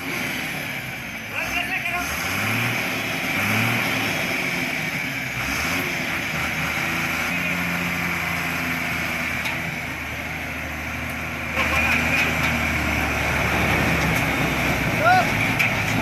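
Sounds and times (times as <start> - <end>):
truck engine revving under load: 0.0 - 16.0.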